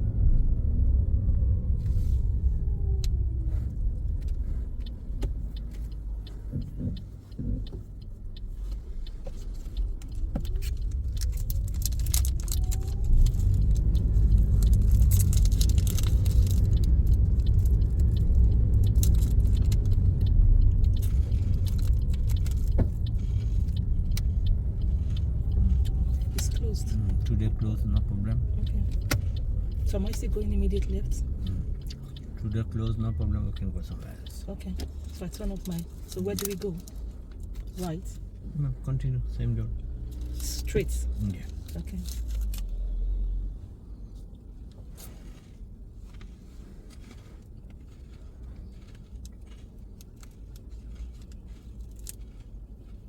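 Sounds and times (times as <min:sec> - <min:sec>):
car engine and road rumble: 0:00.0 - 0:53.0.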